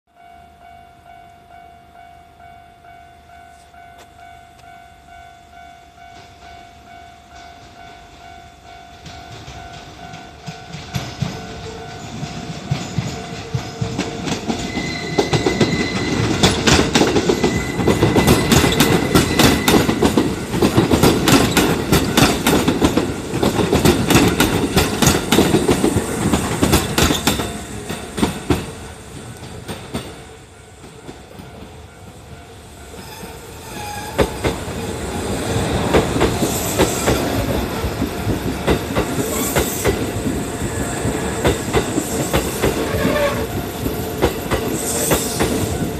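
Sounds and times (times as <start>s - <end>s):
electric trains passing: 0.2s - 45.9s
wheels clacking over rail joints: 9.0s - 31.8s, 32.9s - 45.9s.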